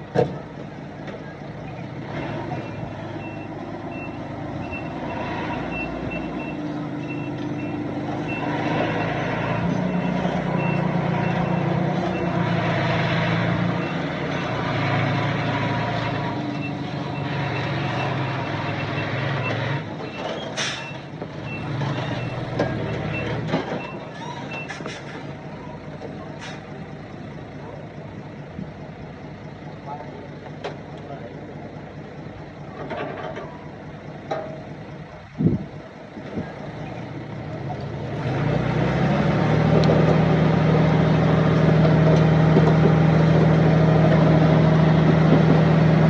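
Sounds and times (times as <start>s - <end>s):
diesel engine revving: 0.0s - 46.0s
reversing alarm beeping: 2.6s - 12.4s.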